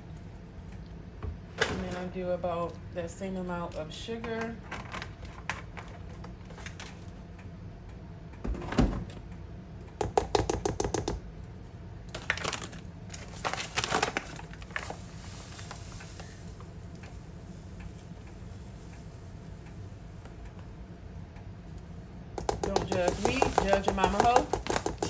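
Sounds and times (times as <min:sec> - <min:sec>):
utensils clinking against bowl: 0:22.4 - 0:25.0.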